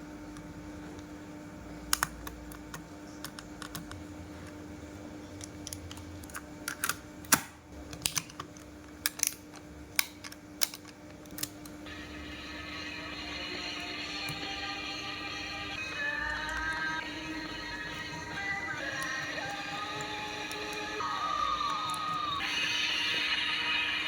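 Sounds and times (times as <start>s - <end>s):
steady multi-tone sound: 11.8s - 24.0s.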